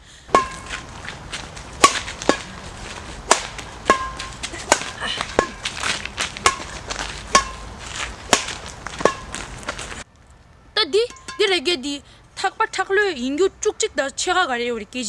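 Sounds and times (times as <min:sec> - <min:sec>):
badminton racket strings pinging: 0:00.3 - 0:10.0, 0:11.0 - 0:11.5.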